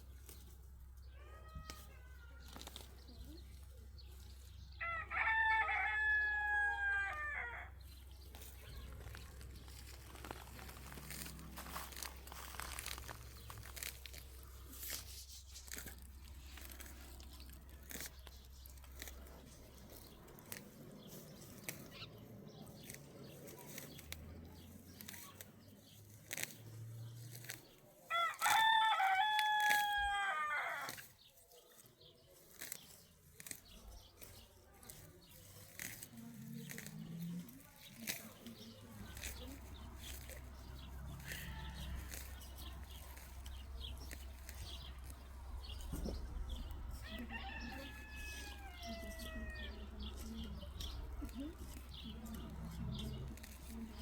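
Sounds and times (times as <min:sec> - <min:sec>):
rooster crowing: 0:04.8 - 0:07.8, 0:28.1 - 0:30.9, 0:47.0 - 0:49.6.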